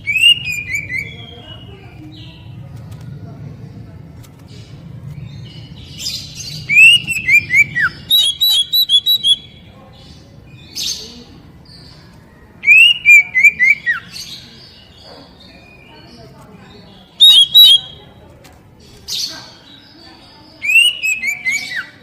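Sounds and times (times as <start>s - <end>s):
bird singing whistled phrases: 0.0s - 1.7s, 6.6s - 9.6s, 12.6s - 14.2s, 17.2s - 18.0s, 20.6s - 22.0s.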